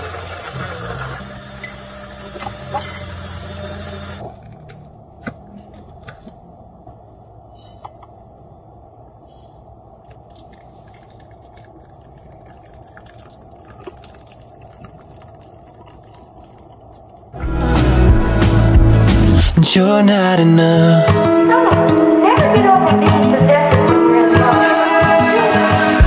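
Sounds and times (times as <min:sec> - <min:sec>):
loud music: 0:17.4 - 0:26.0.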